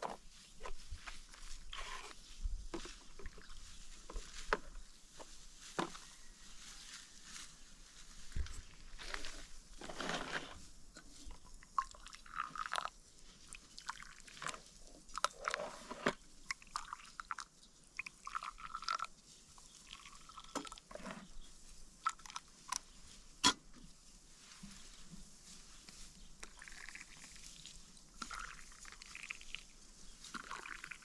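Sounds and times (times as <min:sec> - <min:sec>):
sickle cutting dry wheat stalks: 0:00.0 - 0:11.4, 0:22.6 - 0:31.0.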